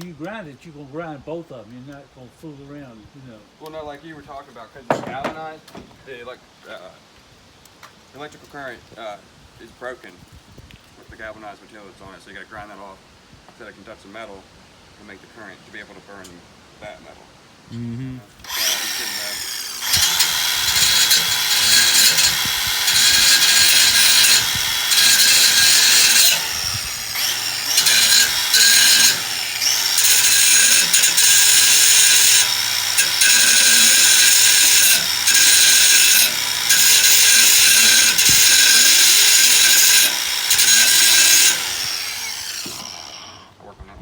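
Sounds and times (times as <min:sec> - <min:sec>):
power grinder grinding metal: 0:18.4 - 0:43.5.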